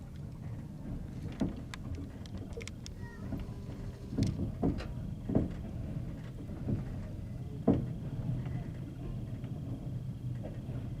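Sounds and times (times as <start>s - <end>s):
train wheels rumbling on rails: 0.0s - 11.0s
wheels knocking on rail joints: 0.4s - 11.0s.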